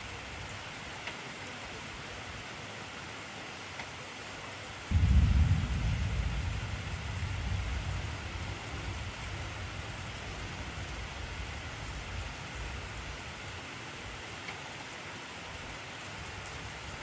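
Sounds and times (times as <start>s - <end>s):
heavy rain: 0.0s - 17.0s
thunder rumbling: 4.9s - 13.4s.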